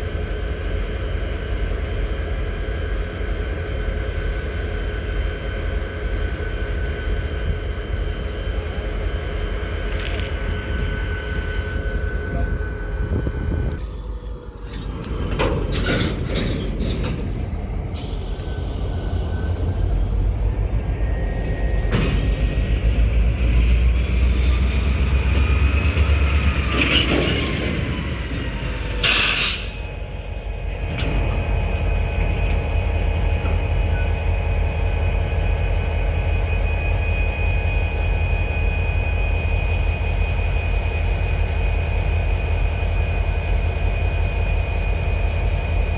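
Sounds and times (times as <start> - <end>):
train cars rumbling: 0.0 - 45.9
wheels squealing: 8.2 - 34.2.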